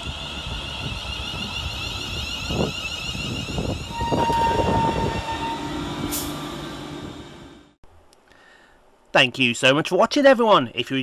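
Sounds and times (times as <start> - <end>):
steady tone: 0.0 - 7.8
train electrical whine: 0.0 - 7.8.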